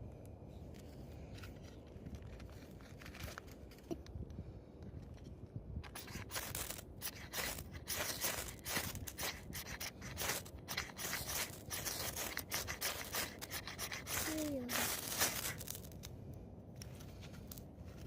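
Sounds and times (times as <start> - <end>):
scraping strokes: 5.8 - 16.1.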